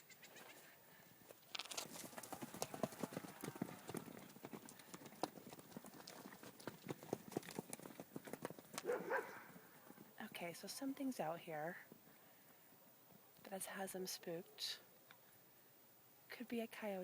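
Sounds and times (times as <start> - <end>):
horse hooves clopping: 1.2 - 10.2.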